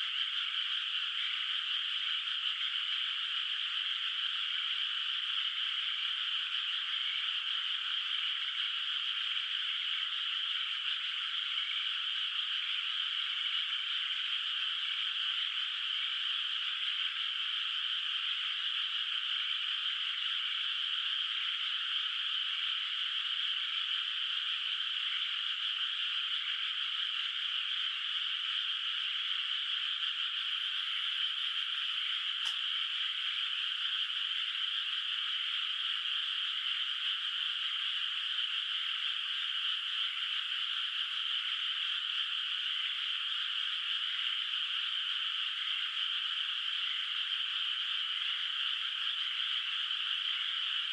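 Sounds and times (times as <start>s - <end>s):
chorus of frogs croaking: 0.0s - 50.9s
faint click: 32.4s - 32.7s.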